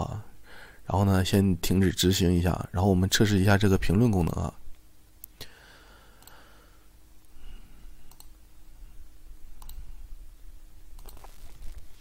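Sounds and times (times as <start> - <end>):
faint low room hum: 0.0 - 12.0
computer mouse clicks: 8.1 - 8.4, 9.6 - 9.8, 11.0 - 11.3.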